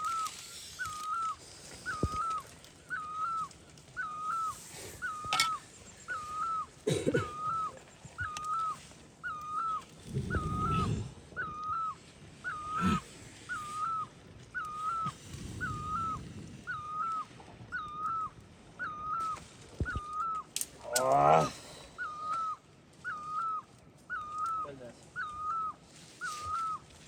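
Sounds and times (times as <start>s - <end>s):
rustling and handling noise: 0.0s - 6.0s
animal whistled call: 0.0s - 26.9s.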